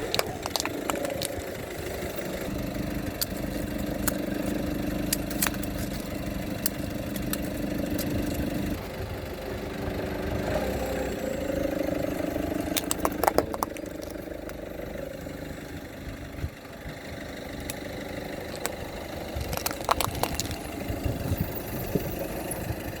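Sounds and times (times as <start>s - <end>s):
objects crushed under tyres: 0.0s - 2.3s, 12.5s - 14.7s, 18.4s - 21.8s
car engine idling: 0.0s - 23.0s.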